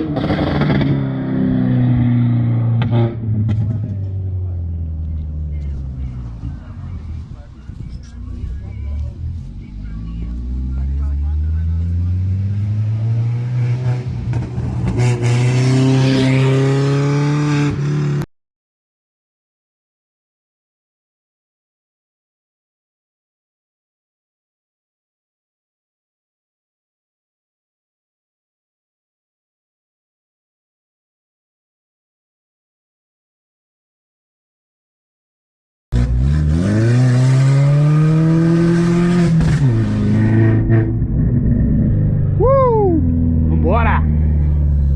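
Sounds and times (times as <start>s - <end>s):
car engine at high revs: 0.0s - 18.3s, 35.9s - 44.9s
car engine revving hard: 10.1s - 18.2s, 35.9s - 41.1s.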